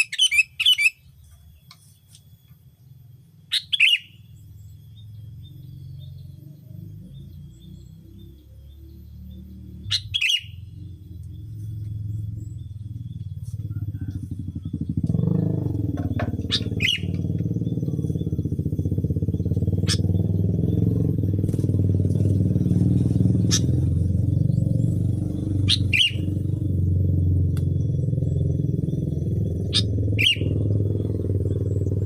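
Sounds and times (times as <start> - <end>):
engine running: 1.0 - 32.0
sharp ticks: 19.7 - 20.6, 21.3 - 26.7.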